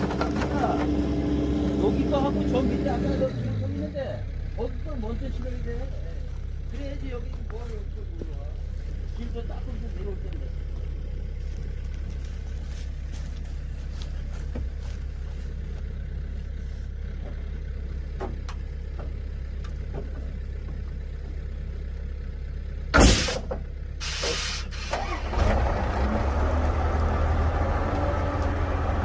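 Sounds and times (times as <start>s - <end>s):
truck engine idling: 0.0s - 29.0s
short loud bursts of noise: 23.0s - 25.2s.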